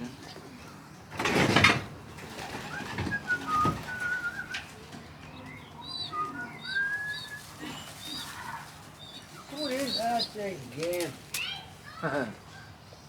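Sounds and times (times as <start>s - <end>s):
baby pigeons squeaking: 5.8s - 10.4s.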